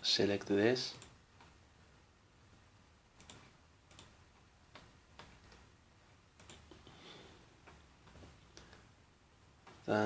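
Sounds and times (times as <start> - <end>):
computer mouse clicks: 1.0 - 1.6, 3.2 - 5.7, 6.4 - 6.8.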